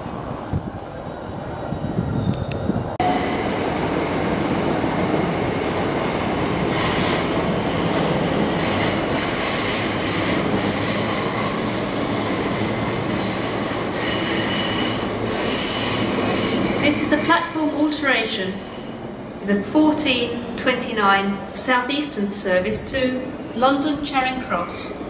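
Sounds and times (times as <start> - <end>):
train wheels rumbling on rail: 0.0 - 20.6
high-pitched wheel squeal: 8.6 - 16.8.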